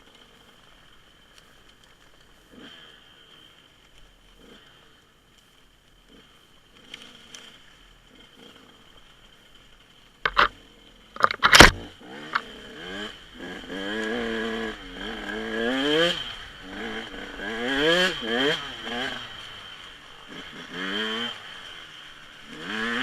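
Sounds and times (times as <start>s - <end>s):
dirt bike engine revving: 2.5s - 3.6s, 4.4s - 5.0s, 6.1s - 9.4s, 10.3s - 23.0s.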